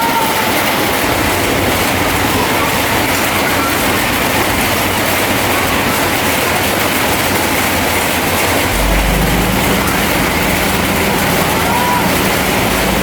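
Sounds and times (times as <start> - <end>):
steel tracks clattering: 0.0 - 13.0
bulldozer diesel engine: 0.7 - 13.0
deep low drone: 8.6 - 13.0.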